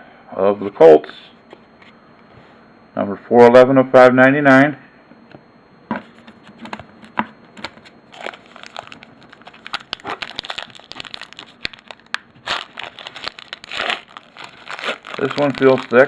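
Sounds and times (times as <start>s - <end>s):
cards being handled: 7.6s - 16.0s
foil wrappers crinkling: 8.1s - 16.0s.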